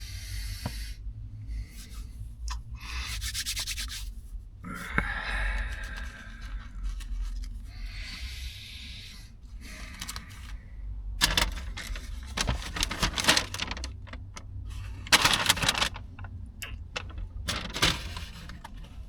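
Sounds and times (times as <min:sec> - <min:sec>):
paper wrapping crinkling: 0:05.6 - 0:07.7, 0:09.6 - 0:10.6, 0:11.2 - 0:19.0.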